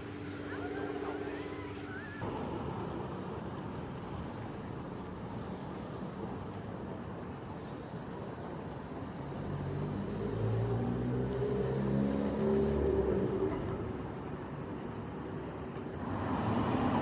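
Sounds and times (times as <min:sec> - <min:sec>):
road traffic noise: 0:00.0 - 0:17.0
vehicle engine approaching: 0:09.3 - 0:14.0.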